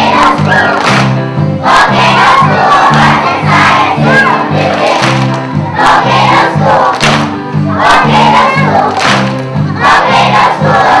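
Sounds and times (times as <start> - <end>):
children singing together: 0.0 - 0.9, 1.6 - 9.0, 9.6 - 11.0
instrumental accompaniment low notes: 0.0 - 11.0.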